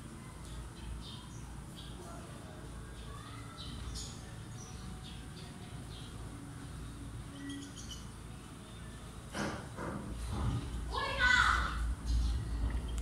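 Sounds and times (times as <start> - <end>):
small birds chirping: 0.0 - 10.3, 10.9 - 13.0
low background rumble: 10.4 - 13.0.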